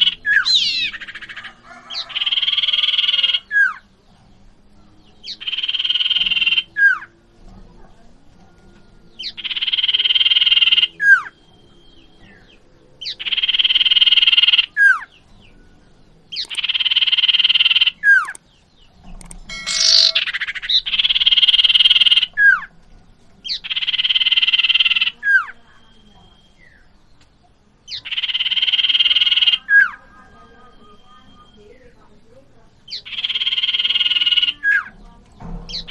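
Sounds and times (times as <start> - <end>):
bird buzzy trill and whistle: 0.0 - 3.8, 5.2 - 7.1, 9.2 - 15.1, 16.3 - 18.4, 19.2 - 22.7, 27.9 - 31.9, 32.9 - 34.9
sharp bird call: 19.2 - 22.6.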